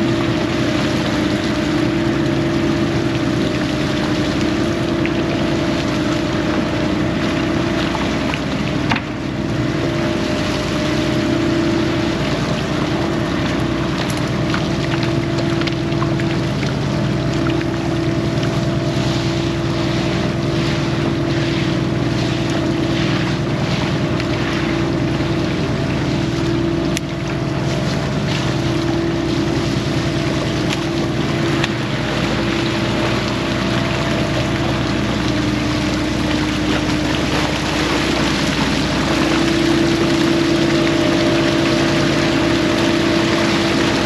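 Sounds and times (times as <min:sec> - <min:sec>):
boat engine running: 0:00.0 - 0:44.0
water rushing along hull: 0:00.0 - 0:44.0.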